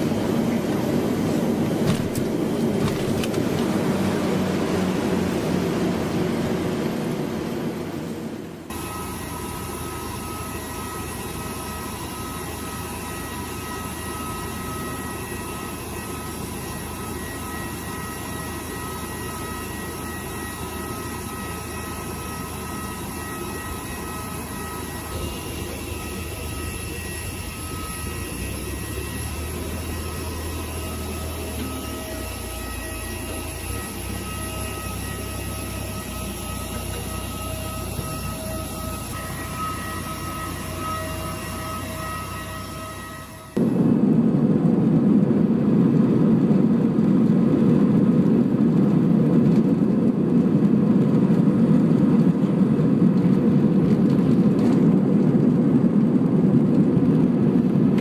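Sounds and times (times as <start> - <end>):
aircraft engine drone: 0.0 - 58.0.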